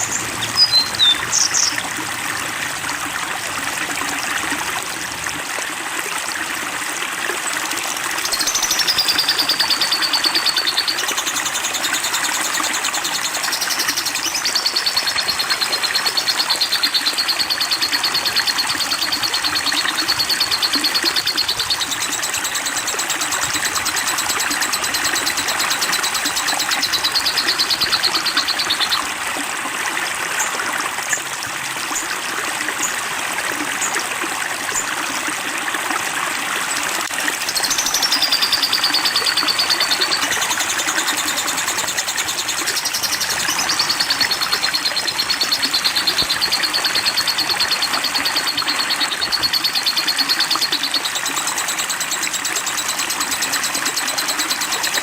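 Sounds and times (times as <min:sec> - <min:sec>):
songbird trilling: 0:00.0 - 0:01.8, 0:08.0 - 0:29.0, 0:37.3 - 0:55.0
water trickling: 0:00.0 - 0:55.0.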